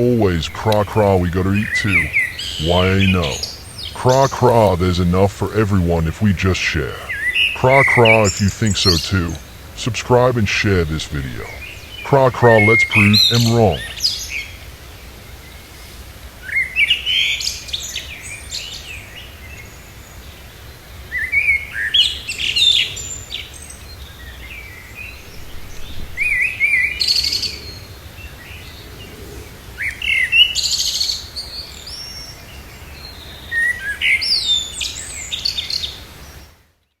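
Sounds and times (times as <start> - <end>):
faint background hum: 0.0 - 14.2.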